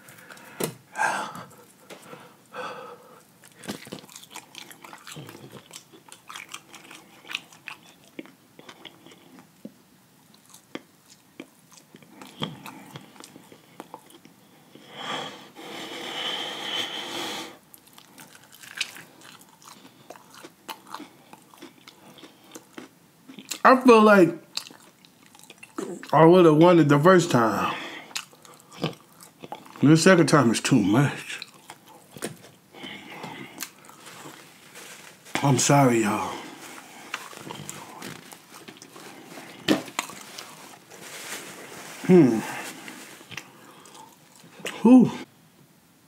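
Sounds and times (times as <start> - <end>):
crunchy chewing: 3.4 - 14.8, 17.7 - 23.6, 24.5 - 26.2, 28.0 - 29.8, 31.3 - 44.8.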